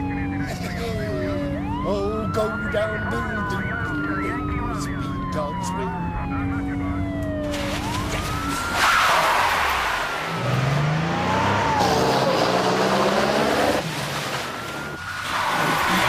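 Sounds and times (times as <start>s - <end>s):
car engine revving hard: 10.1s - 14.0s
tyres squealing: 15.0s - 16.0s.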